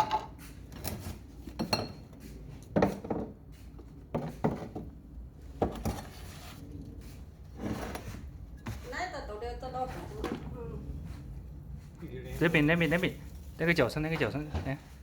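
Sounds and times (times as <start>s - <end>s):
household items clinking and knocking: 0.0s - 6.4s.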